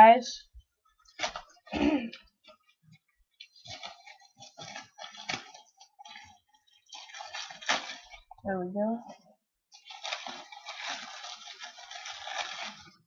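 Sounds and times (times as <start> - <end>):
plastic packaging crinkling: 1.0 - 2.8, 3.4 - 8.4, 9.8 - 13.0.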